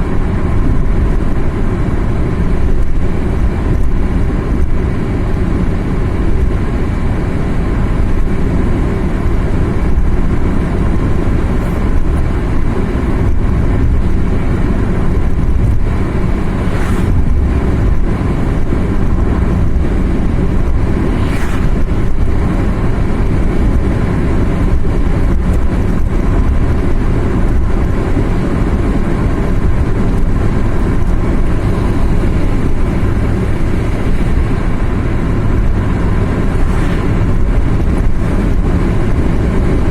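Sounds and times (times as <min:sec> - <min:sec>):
car driving on road: 0:00.0 - 0:39.9
brief hissing swells: 0:16.4 - 0:17.4, 0:20.8 - 0:22.0.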